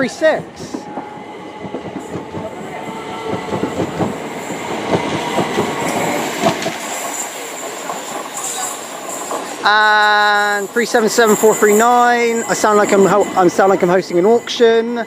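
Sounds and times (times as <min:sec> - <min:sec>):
train wheels clattering over track: 0:00.5 - 0:13.8
faint high wheel squeal: 0:06.8 - 0:15.0.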